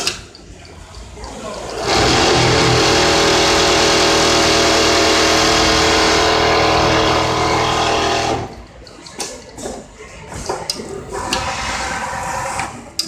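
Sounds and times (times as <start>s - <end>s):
sewing machine whirring: 1.4s - 8.8s.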